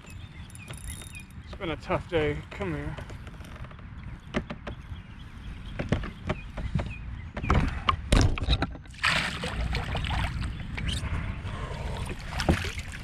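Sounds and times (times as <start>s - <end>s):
sharp clicks and knocks: 3.0s - 4.8s, 5.7s - 8.9s
water splashing beside kayak: 8.9s - 10.6s, 11.9s - 13.0s.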